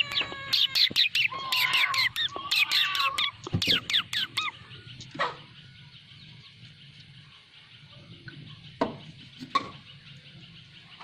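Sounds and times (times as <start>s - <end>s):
long falling bird call: 0.0s - 4.9s
birds chirping: 0.0s - 11.0s.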